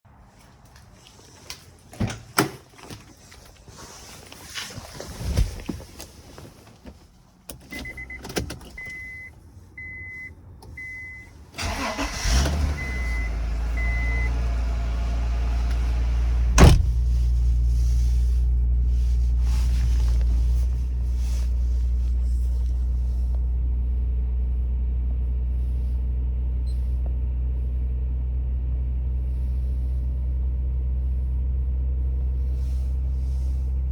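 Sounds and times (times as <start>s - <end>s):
car engine cranking and idling: 5.4s - 33.9s
loud thump: 16.5s - 17.1s.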